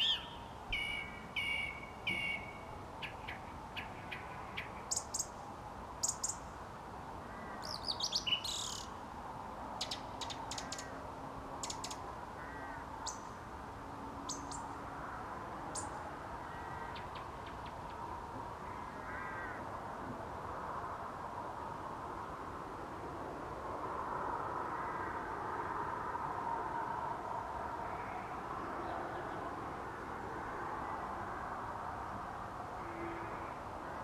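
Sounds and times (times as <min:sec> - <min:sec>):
song thrush singing: 0:00.0 - 0:05.4, 0:07.6 - 0:09.0
faint bird calls: 0:11.6 - 0:13.2.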